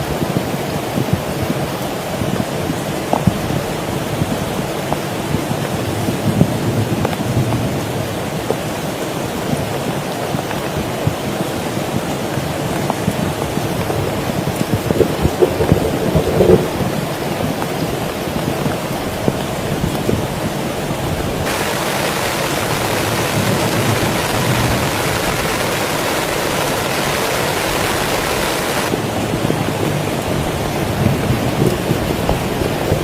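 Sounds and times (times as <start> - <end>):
heavy rain patter: 0.0 - 33.0
bright hiss: 21.4 - 28.9.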